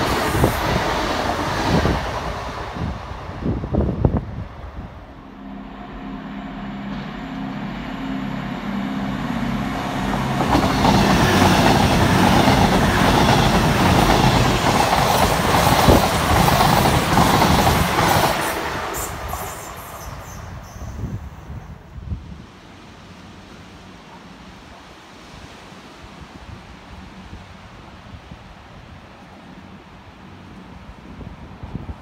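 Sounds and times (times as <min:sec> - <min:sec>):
rush of train wheels on rails: 0:00.0 - 0:21.7.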